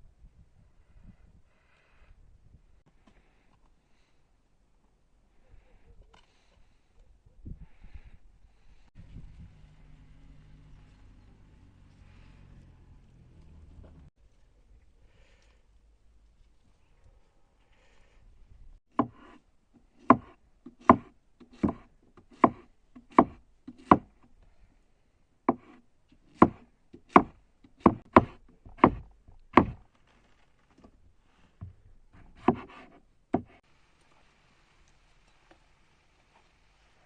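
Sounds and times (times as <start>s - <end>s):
chopping onto wood: 18.9s - 19.2s, 20.0s - 24.2s, 25.5s - 29.8s, 32.3s - 32.8s, 33.4s - 33.6s.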